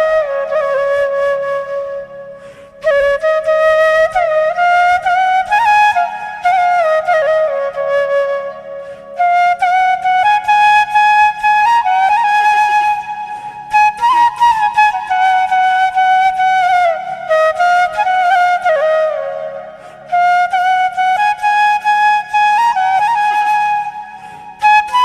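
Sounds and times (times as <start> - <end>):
flute melody with sliding notes: 0.0 - 25.0.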